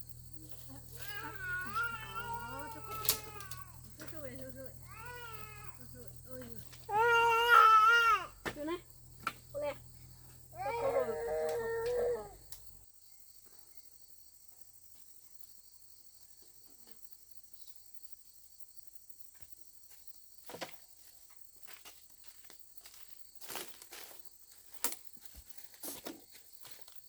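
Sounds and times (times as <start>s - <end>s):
rustles and light steps: 0.0s - 6.9s, 19.4s - 27.0s
high-pitched insect chorus: 0.0s - 27.0s.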